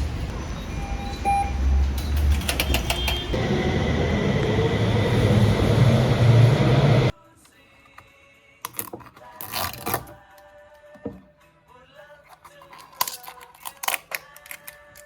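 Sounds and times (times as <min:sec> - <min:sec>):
vehicle rumble from inside: 0:00.0 - 0:07.1.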